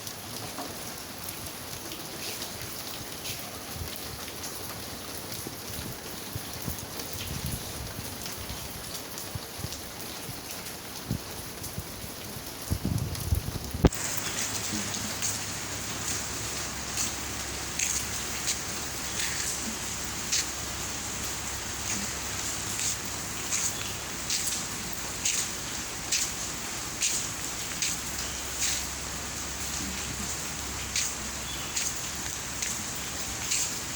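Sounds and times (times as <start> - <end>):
heavy rain: 0.0 - 33.9
drops splashing: 13.8 - 33.9.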